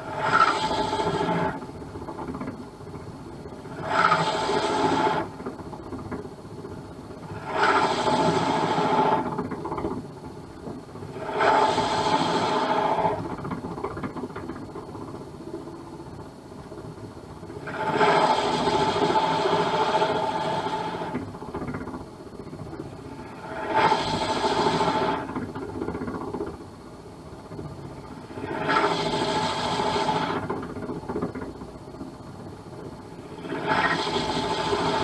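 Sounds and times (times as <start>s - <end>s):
lathe running: 0.0s - 2.5s, 3.5s - 6.2s, 7.1s - 9.9s, 11.0s - 13.8s, 17.6s - 22.0s, 22.8s - 26.5s, 27.9s - 31.5s, 33.0s - 35.0s
drill bit boring into plastic: 7.4s - 9.5s.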